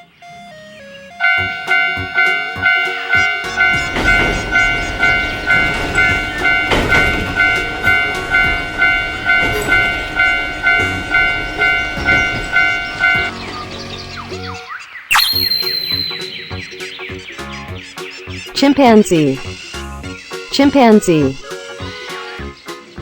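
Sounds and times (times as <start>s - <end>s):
railroad crossing bell ringing: 1.2s - 13.4s, 15.1s - 17.0s
train rumbling past: 1.2s - 14.4s.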